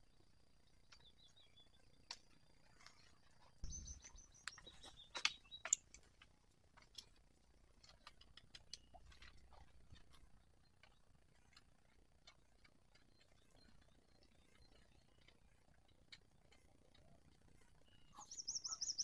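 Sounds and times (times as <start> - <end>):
birds chirping: 0.7 - 6.0, 12.0 - 19.0
brief low rumble: 3.6 - 4.2
small clicks: 4.0 - 17.7.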